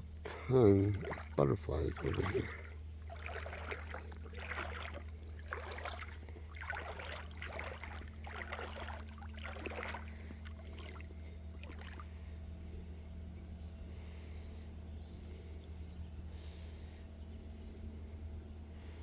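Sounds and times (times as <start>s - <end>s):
steady low hum: 0.0s - 19.0s
footsteps splashing through water: 0.7s - 12.2s.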